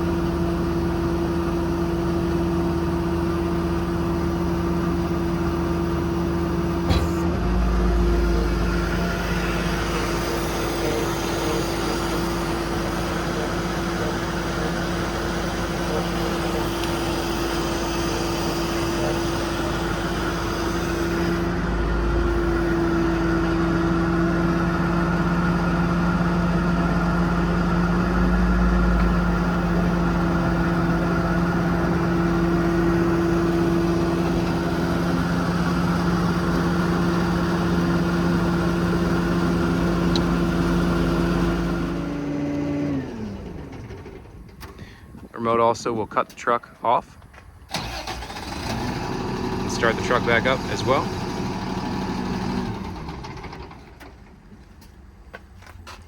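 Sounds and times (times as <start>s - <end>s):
diesel truck engine running: 0.0s - 56.0s
hydraulic whine: 2.4s - 45.3s.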